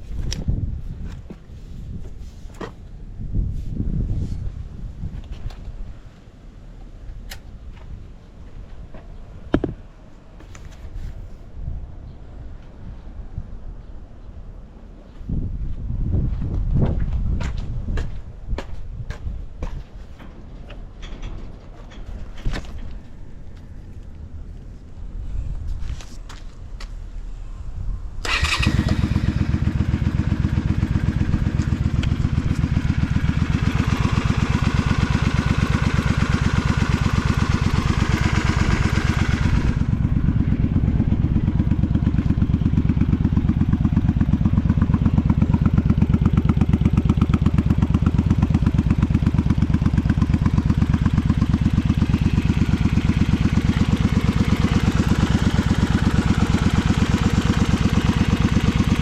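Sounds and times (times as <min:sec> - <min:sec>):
motorcycle engine idling: 0:28.2 - 0:59.0.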